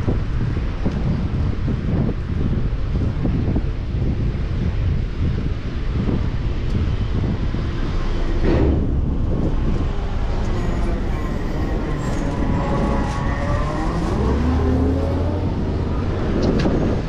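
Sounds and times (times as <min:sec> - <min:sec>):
wind rumble on microphone: 0:00.0 - 0:17.0
vehicle passing: 0:07.6 - 0:17.0
motor whine rising in pitch: 0:09.6 - 0:16.4.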